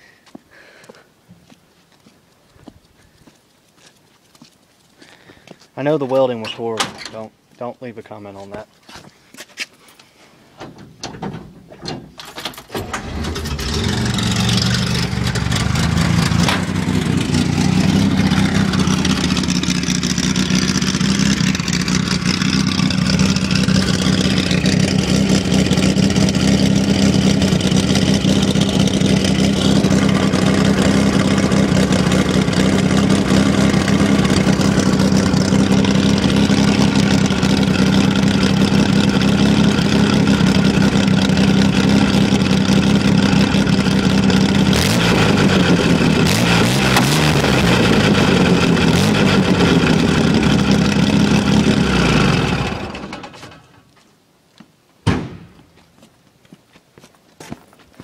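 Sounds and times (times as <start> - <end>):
car engine cranking and starting: 10.7 - 53.8
loud engine idling: 12.8 - 53.4.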